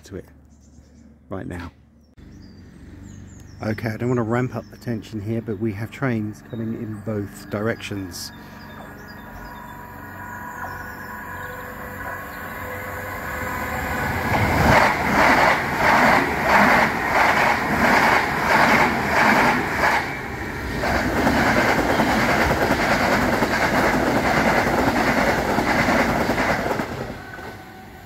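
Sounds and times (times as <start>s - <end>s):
passing train rushing: 8.0s - 28.0s
train wheels clattering: 20.7s - 27.5s.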